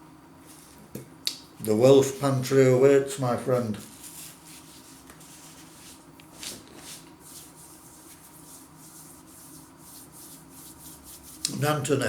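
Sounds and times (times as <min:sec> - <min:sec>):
low room hum: 0:00.0 - 0:12.0
faint rustling and handling: 0:00.4 - 0:01.0, 0:03.2 - 0:11.8.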